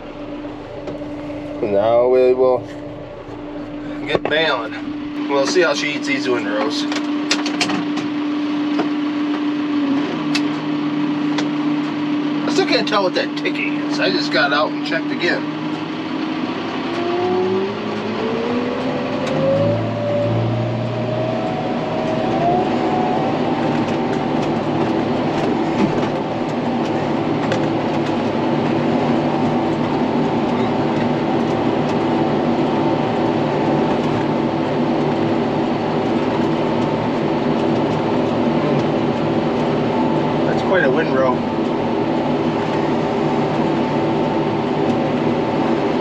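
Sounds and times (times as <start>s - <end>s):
round baler running: 0.0s - 46.0s
tractor engine revving under load: 15.4s - 40.6s.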